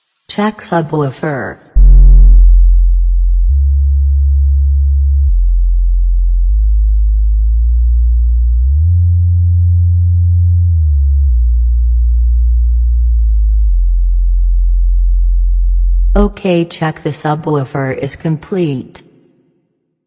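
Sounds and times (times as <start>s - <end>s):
deep sine test tone: 1.7s - 16.3s.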